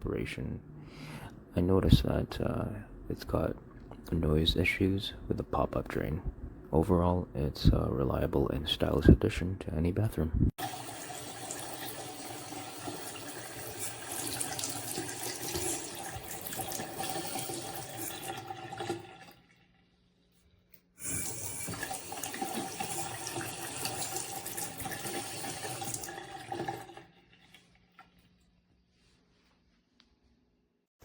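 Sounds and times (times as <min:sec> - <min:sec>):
faucet running into sink: 0:10.6 - 0:19.6, 0:21.0 - 0:28.1.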